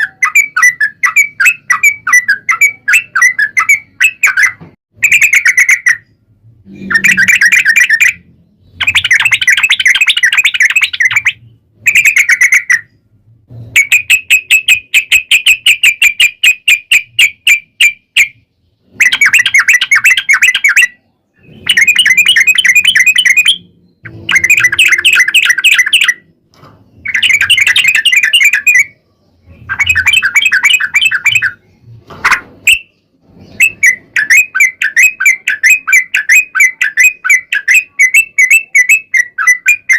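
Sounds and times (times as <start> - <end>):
bird rolling chatter: 6.8 - 12.8, 26.9 - 28.9, 29.6 - 39.9.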